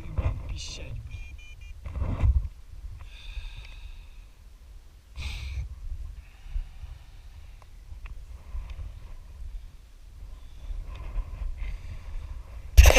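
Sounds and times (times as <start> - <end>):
short high beeps: 1.1 - 1.8
wind buffeting microphone: 1.8 - 3.6.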